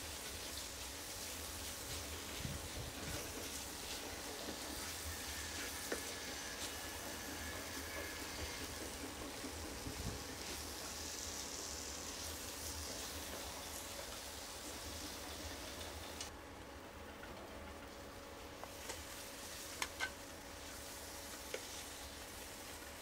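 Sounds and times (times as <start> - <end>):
vegetables sizzling in a frying pan: 0.0 - 16.3, 18.5 - 23.0.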